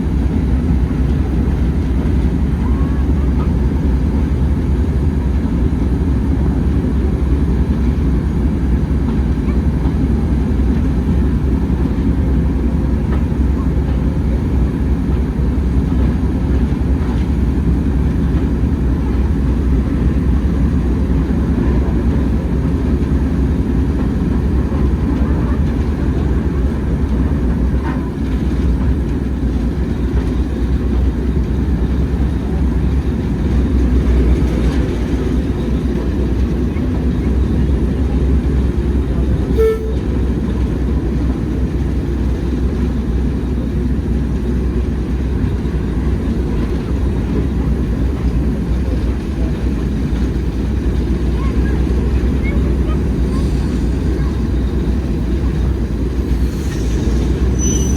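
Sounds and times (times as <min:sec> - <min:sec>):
train toot: 0:00.0 - 0:05.0, 0:39.0 - 0:43.8, 0:50.7 - 0:57.9
train rumbling: 0:00.0 - 0:57.9.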